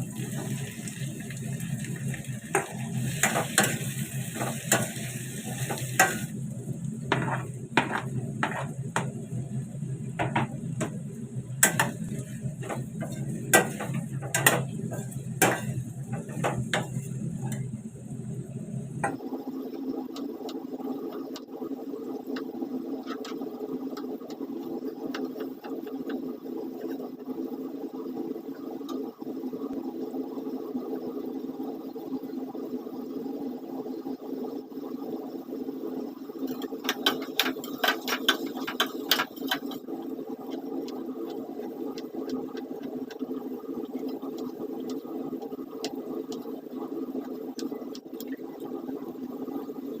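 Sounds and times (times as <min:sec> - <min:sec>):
steady low hum: 0:00.0 - 0:50.0
utensil scraping and clinking in pan: 0:02.5 - 0:06.3, 0:07.1 - 0:09.3, 0:11.6 - 0:17.8, 0:36.5 - 0:39.8.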